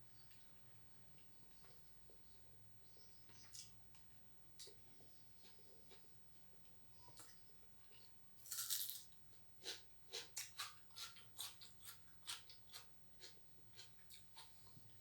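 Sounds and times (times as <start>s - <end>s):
crunchy bite: 8.4s - 13.9s.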